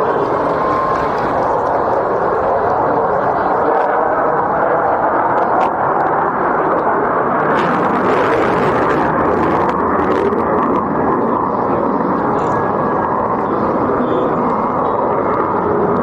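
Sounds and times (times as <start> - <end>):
fighter jet engine noise: 0.0 - 16.0.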